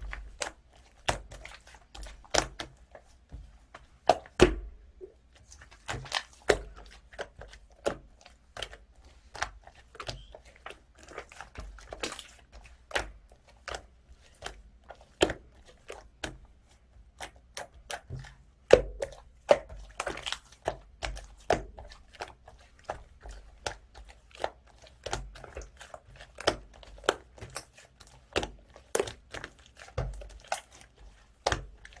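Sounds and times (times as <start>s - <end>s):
slime squished by hand: 17.2s - 32.0s.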